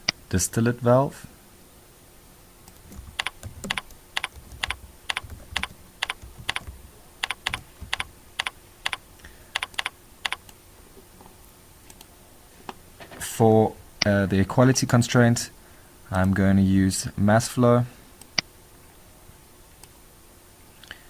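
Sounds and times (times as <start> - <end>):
keyboard typing: 2.7 - 9.0, 9.6 - 10.5.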